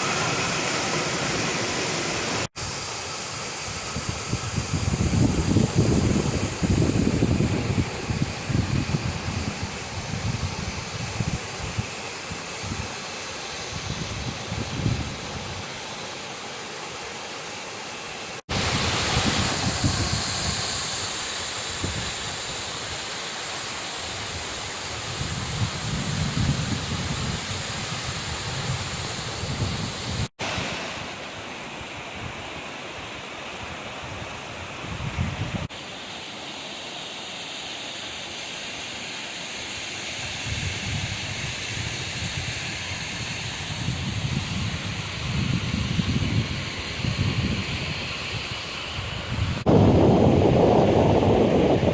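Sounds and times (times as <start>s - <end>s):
waterfall rushing: 0.0s - 25.2s
wind gusting on microphone: 3.6s - 13.0s, 13.6s - 15.7s, 18.5s - 22.9s, 24.2s - 31.0s, 34.0s - 35.7s, 40.3s - 51.9s.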